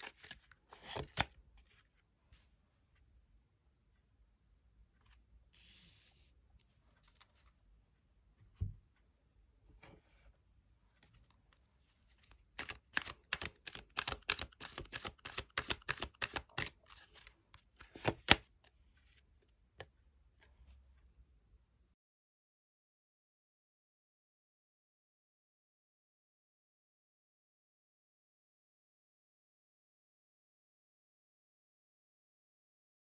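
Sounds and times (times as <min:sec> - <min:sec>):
cards being shuffled: 0:00.0 - 0:01.4, 0:12.2 - 0:18.4
card flicks and slaps: 0:12.6 - 0:18.4.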